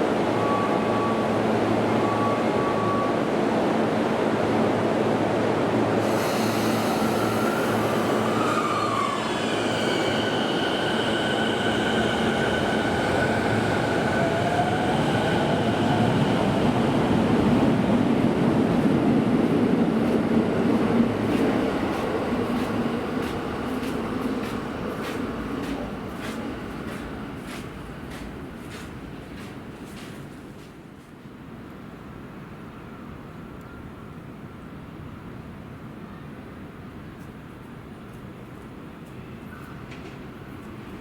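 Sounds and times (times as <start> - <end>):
train wheels and motors rumbling: 6.0 - 31.2.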